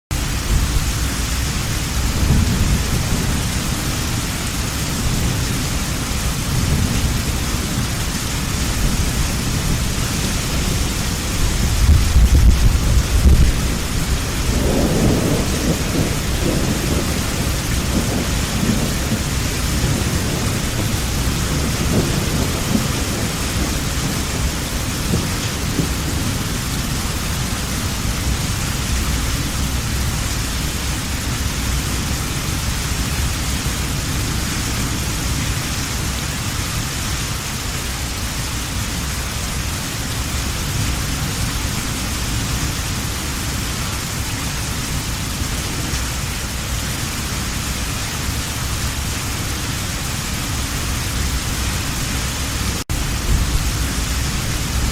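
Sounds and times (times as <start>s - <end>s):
heavy rain: 0.1s - 54.9s
low rumble of thunder: 0.2s - 36.9s, 52.6s - 54.9s.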